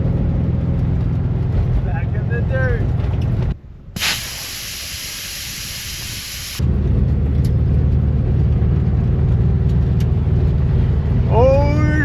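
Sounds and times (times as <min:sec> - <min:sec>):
van engine rumbling on dirt road: 0:00.0 - 0:12.0
steady hiss: 0:04.0 - 0:06.6.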